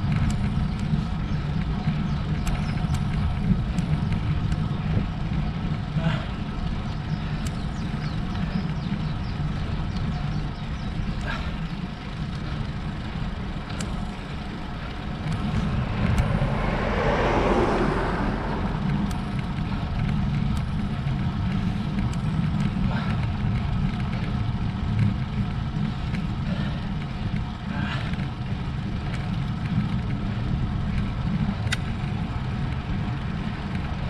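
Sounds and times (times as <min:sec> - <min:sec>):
wind and road noise rumble: 0:00.0 - 0:34.0
motor vehicle passing: 0:12.5 - 0:22.0.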